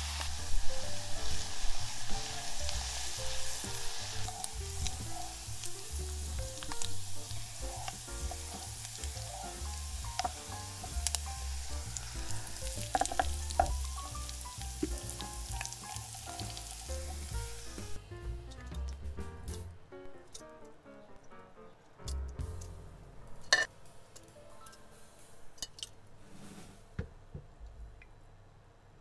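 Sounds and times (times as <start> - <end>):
spatula stirring in saucepan: 0.0 - 18.0
garlic sizzling in oil: 0.0 - 19.0
soft background music: 0.0 - 25.7.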